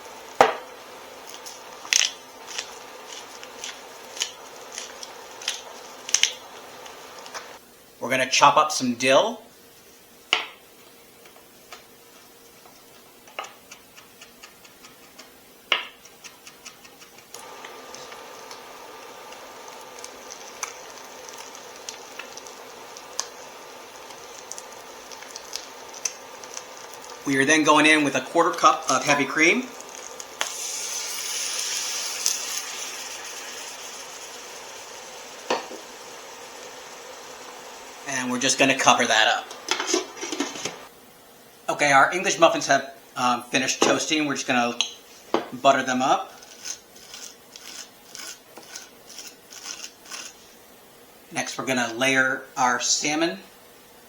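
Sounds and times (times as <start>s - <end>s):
eggs sizzling in hot oil: 0.0s - 7.6s, 16.9s - 40.9s, 44.4s - 53.0s
steady hiss: 0.0s - 54.0s.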